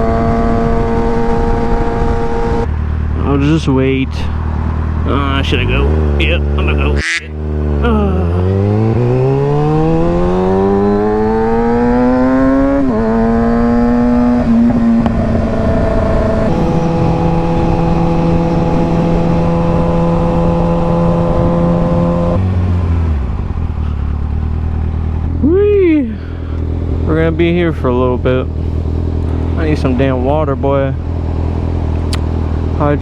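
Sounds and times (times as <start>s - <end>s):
wind noise: 0.0s - 3.1s
motorcycle engine accelerating: 0.0s - 3.2s, 4.2s - 6.7s, 7.3s - 33.0s.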